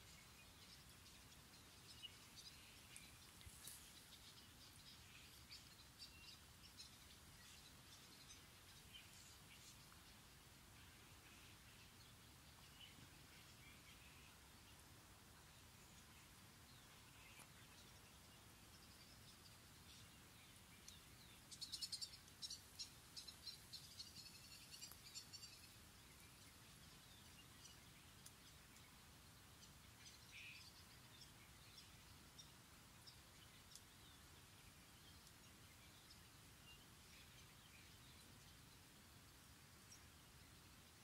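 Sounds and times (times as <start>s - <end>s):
birdsong high chirping: 0.0s - 41.0s
faint background hiss: 0.0s - 41.0s.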